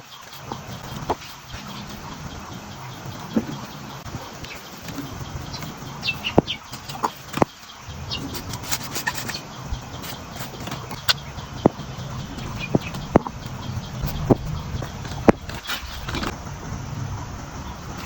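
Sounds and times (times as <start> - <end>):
bird chirps: 0.0 - 16.4
low background rumble: 0.4 - 18.0.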